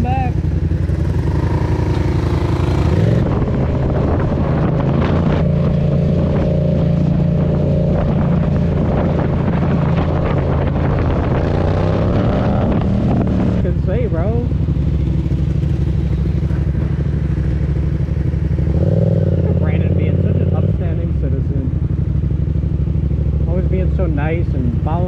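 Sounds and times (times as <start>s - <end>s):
wind on microphone: 0.0s - 17.0s
motorcycle engine running: 0.0s - 25.0s.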